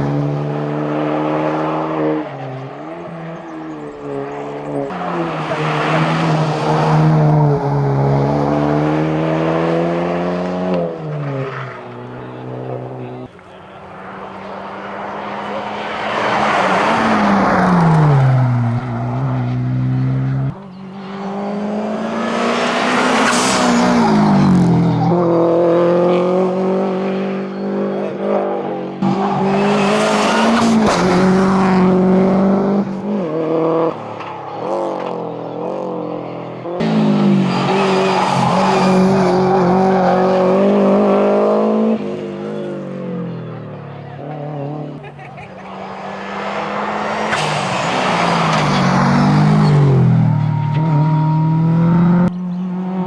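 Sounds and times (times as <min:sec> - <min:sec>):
rally car engine revving hard: 0:00.0 - 0:53.0.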